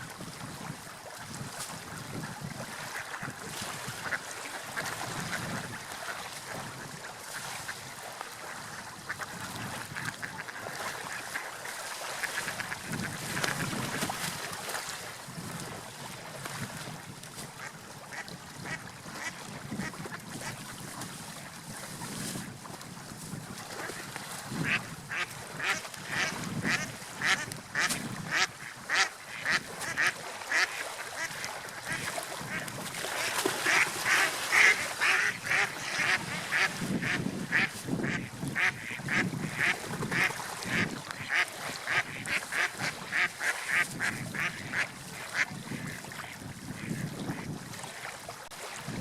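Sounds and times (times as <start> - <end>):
waves: 0.0 - 49.0
wind: 0.0 - 49.0.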